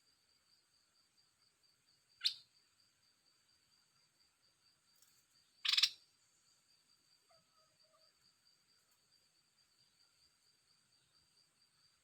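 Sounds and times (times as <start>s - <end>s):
songbird short calls: 2.2s - 2.4s, 5.6s - 6.0s.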